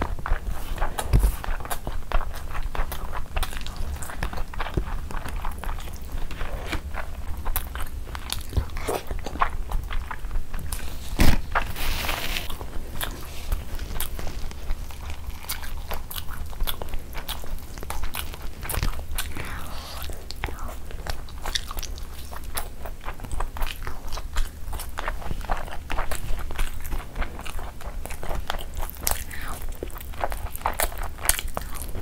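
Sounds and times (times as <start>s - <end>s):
person chewing food: 0.0s - 32.0s
tissue rustling: 10.8s - 14.8s.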